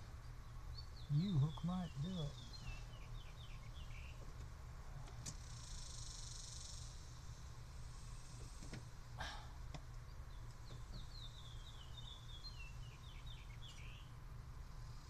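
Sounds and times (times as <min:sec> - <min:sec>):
bird chirping: 0:00.0 - 0:04.4, 0:10.0 - 0:14.2
low steady hum: 0:00.0 - 0:15.0.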